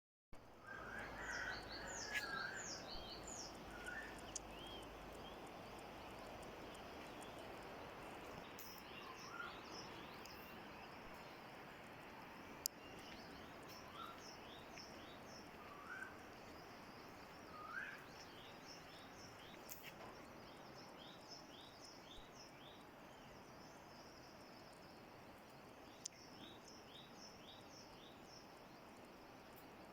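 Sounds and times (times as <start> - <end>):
faint background hiss: 0.4 - 29.9
birds chirping: 0.6 - 23.5
whistled bird notes: 17.5 - 18.2.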